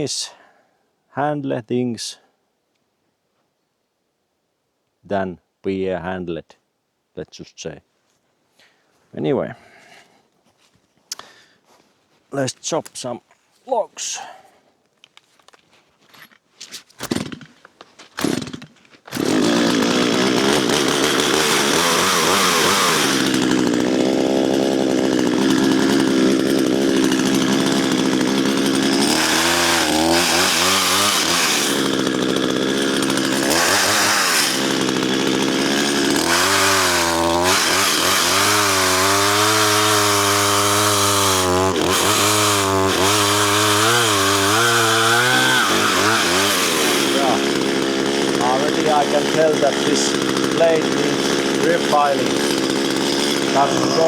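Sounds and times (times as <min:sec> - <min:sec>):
chainsaw cutting log: 0:16.3 - 0:54.0.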